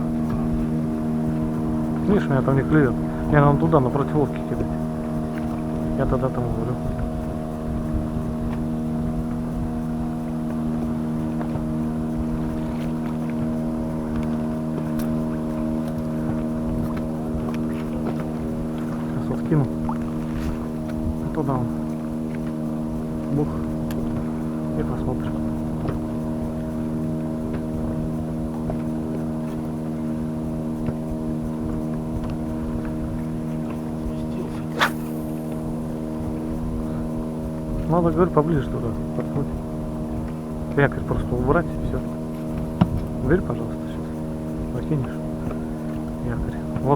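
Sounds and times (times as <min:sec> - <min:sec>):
boat motor humming: 0:00.0 - 0:46.9
wind rumble on microphone: 0:00.0 - 0:46.9
faint clicks: 0:23.3 - 0:26.8.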